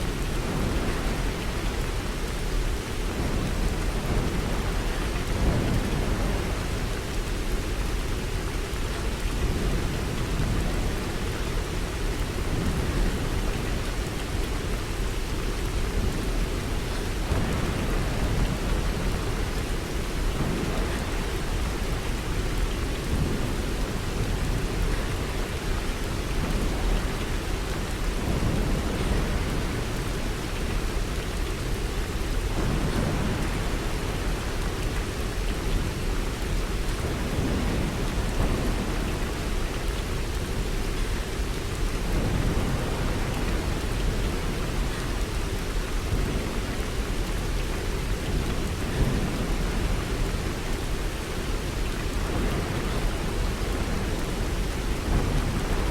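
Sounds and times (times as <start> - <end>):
steady rain: 0.0 - 55.9
low rolling thunder: 3.0 - 7.1, 15.9 - 30.4, 41.9 - 45.0, 48.3 - 55.9.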